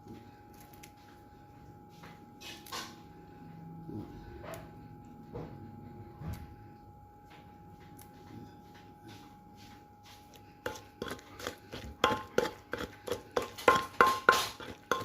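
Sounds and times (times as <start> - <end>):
pestle pounding in mortar: 10.6 - 15.0.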